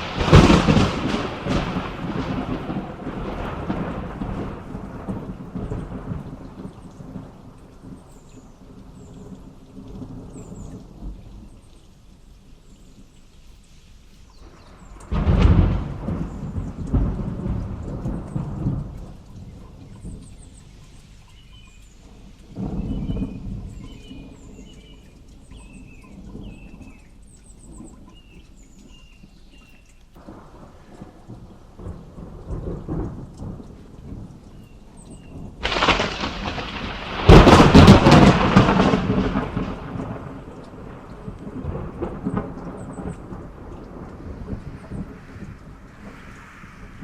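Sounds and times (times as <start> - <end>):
sharp thunderclap: 0.0 - 7.3, 14.7 - 20.6, 30.2 - 34.4, 35.3 - 47.0
thunder rumbling: 0.0 - 11.7, 14.4 - 27.9, 30.2 - 47.0
steady rain: 0.0 - 47.0.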